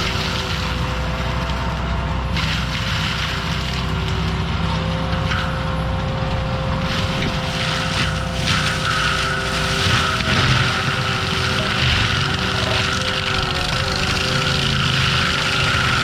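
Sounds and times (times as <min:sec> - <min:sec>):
forestry mulcher running: 0:00.0 - 0:16.0
higher whine: 0:00.0 - 0:16.0.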